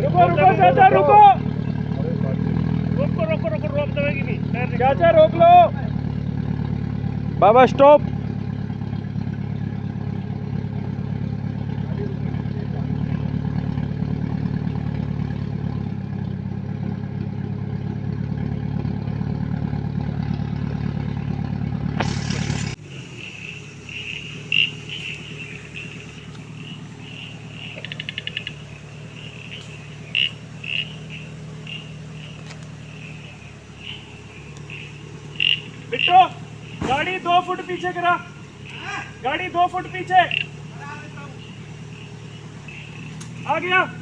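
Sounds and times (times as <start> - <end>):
off-road vehicle engine idling: 0.0 - 44.0
loud rush: 22.0 - 22.9
high pulsing chirping: 22.0 - 44.0.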